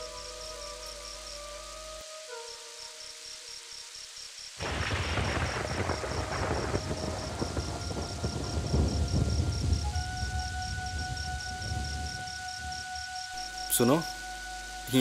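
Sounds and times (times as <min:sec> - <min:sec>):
soft held music: 0:00.0 - 0:04.0, 0:05.8 - 0:15.0
heavy rain: 0:02.8 - 0:12.9
thunder crack and rumble: 0:04.6 - 0:12.2.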